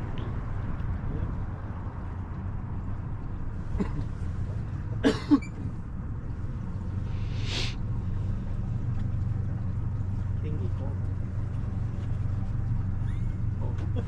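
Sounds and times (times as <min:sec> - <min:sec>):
boat motor humming: 0:00.0 - 0:14.0
brief hiss: 0:07.1 - 0:07.8.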